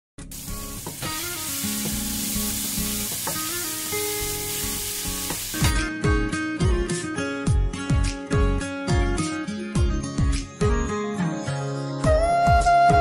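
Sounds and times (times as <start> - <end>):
food sizzling in a frying pan: 0.2 - 5.8
background music with steady beat: 0.2 - 13.0.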